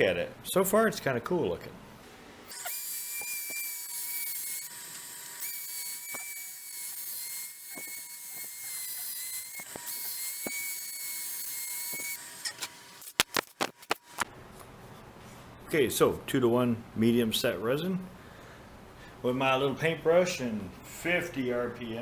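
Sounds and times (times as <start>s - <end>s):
power tool motor whine: 2.1s - 14.3s.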